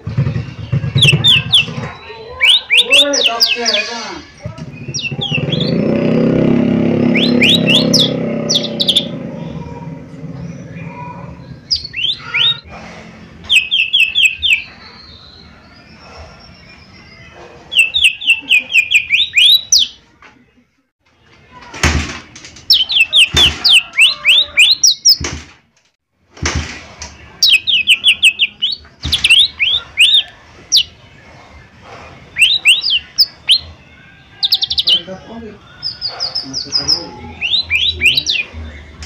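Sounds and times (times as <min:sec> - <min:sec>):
bird whistling song: 0:00.0 - 0:06.0, 0:07.0 - 0:09.6, 0:10.4 - 0:12.6, 0:13.4 - 0:20.0, 0:22.7 - 0:25.2, 0:27.4 - 0:31.0, 0:32.3 - 0:39.0
sharp knocks: 0:21.7 - 0:24.0, 0:25.1 - 0:25.7, 0:26.3 - 0:27.2.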